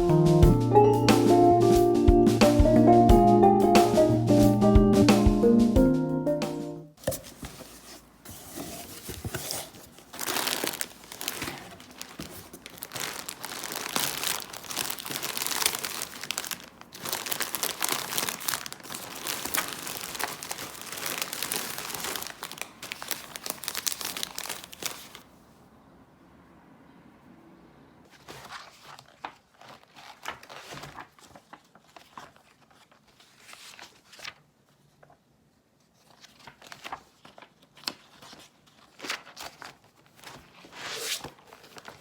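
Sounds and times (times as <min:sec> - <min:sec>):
crinkling and rustling: 0:07.0 - 0:25.3, 0:28.1 - 0:35.2, 0:35.8 - 0:42.0.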